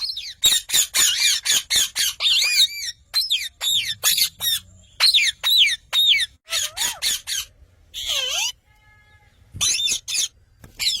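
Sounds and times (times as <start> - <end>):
parrot squawking: 0.0 - 8.6, 9.6 - 11.0.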